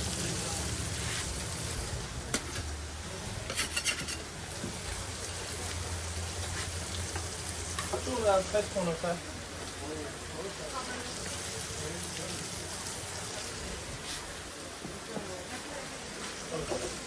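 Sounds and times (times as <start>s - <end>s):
food frying sizzle: 0.0s - 17.0s
kitchen utensils clinking: 3.4s - 4.3s.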